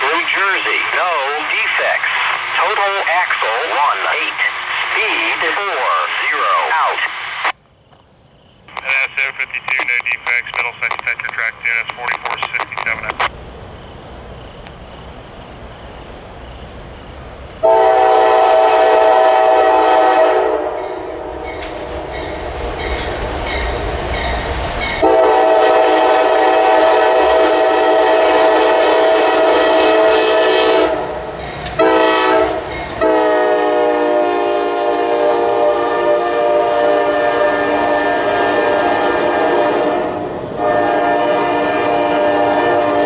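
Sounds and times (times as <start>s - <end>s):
low rumble of train: 0.0s - 43.0s
locomotive air horn blasts: 17.6s - 21.5s, 25.0s - 31.2s, 31.8s - 43.0s.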